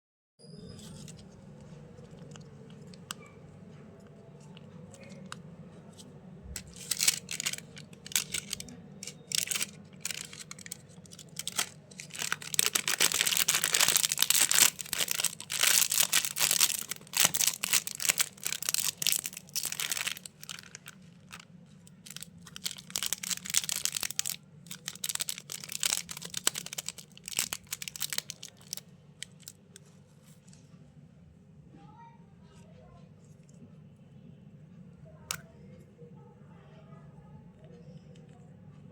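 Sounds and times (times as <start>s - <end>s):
plastic wrappers crinkling: 6.6s - 29.6s.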